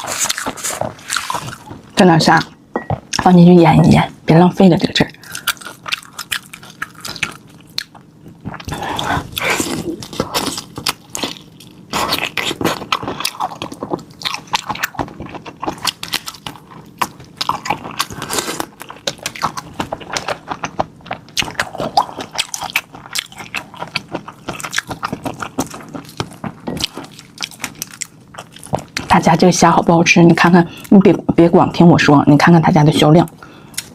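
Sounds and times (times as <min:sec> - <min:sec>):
person biting and chewing prawns: 0:00.0 - 0:01.9, 0:05.2 - 0:29.1, 0:33.6 - 0:33.9.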